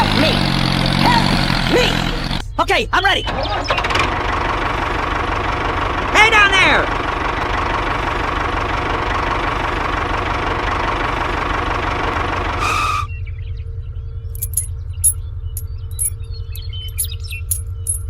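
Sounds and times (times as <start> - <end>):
engine running: 0.0 - 2.6, 3.5 - 18.0
low rhythmic rumble: 11.0 - 18.0.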